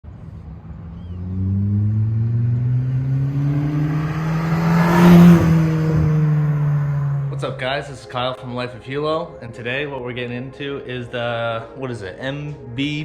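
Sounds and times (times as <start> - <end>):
car engine accelerating: 0.0 - 7.9.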